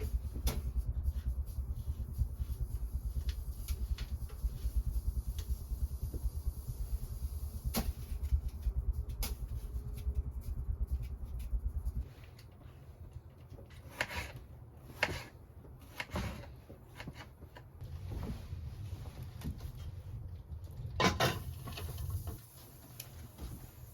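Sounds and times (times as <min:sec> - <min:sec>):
low rumble: 0:00.0 - 0:13.1, 0:17.8 - 0:22.4
objects knocking and clattering: 0:20.7 - 0:22.2.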